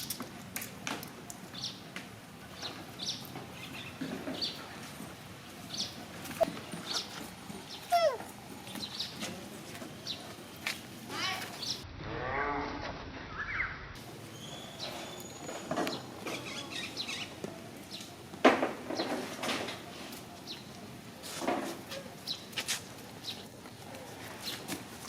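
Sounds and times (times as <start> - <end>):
animal chirps and squeaks: 6.3 - 8.3.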